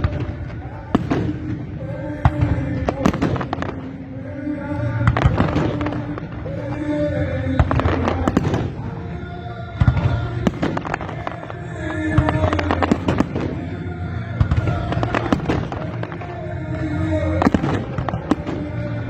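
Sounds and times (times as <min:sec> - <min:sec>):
fireworks bangs and crackles: 0:00.0 - 0:19.0
music playing: 0:00.0 - 0:19.0.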